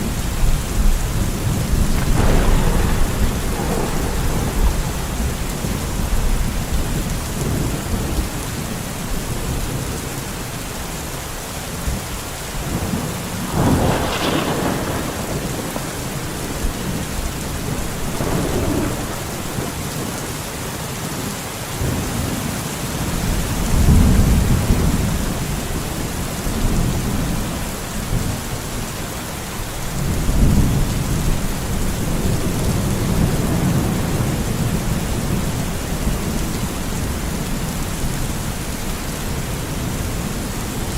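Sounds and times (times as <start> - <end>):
thunder rolling: 0.0 - 8.6, 12.6 - 20.4
steady rain: 0.0 - 40.9.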